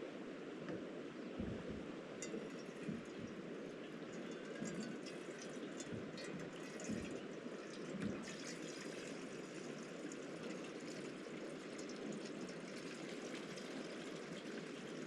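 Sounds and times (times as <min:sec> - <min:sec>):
flowing river water: 0:00.0 - 0:15.0
soft low knocks: 0:01.4 - 0:03.4.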